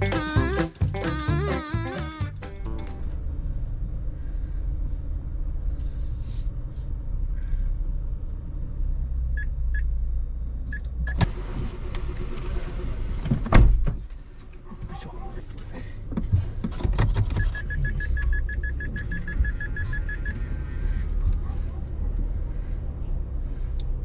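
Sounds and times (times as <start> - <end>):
low rumble in car wash: 2.9 - 24.0
short beeps: 17.4 - 20.4.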